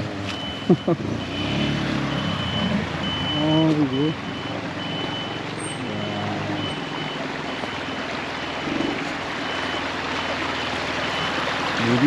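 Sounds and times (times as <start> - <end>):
mountain stream rushing: 0.0 - 12.0
high electronic beep: 0.4 - 8.0.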